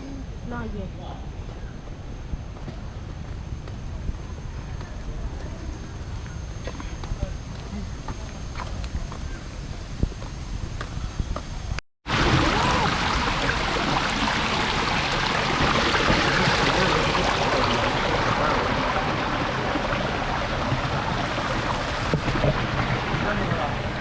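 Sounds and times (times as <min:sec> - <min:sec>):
running water rushing: 0:12.0 - 0:24.0.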